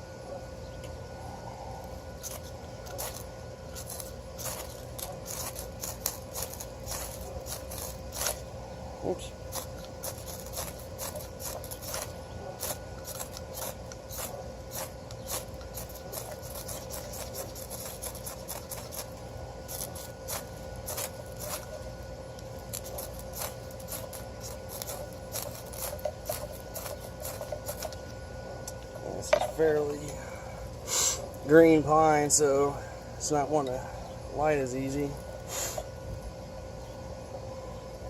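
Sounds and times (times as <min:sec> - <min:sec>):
knife scraping wood: 0:02.2 - 0:08.5, 0:09.4 - 0:21.9, 0:22.6 - 0:28.0.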